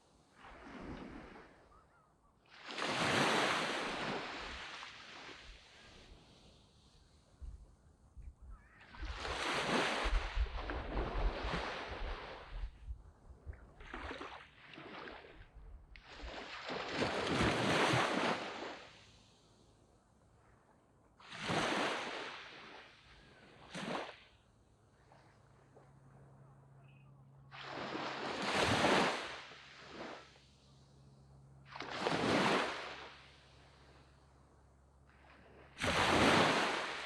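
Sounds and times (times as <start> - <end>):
small waves washing up beach: 0.0 - 1.8, 2.4 - 7.4, 8.7 - 12.8, 13.6 - 19.8, 21.2 - 26.4, 27.5 - 37.0.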